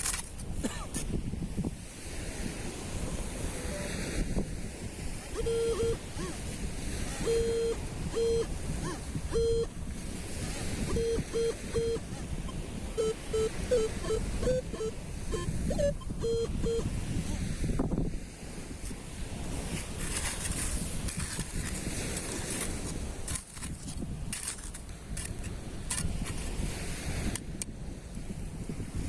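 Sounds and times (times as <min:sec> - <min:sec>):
wind: 0:00.0 - 0:29.0
metal detector beeping: 0:05.1 - 0:17.8, 0:19.5 - 0:27.7.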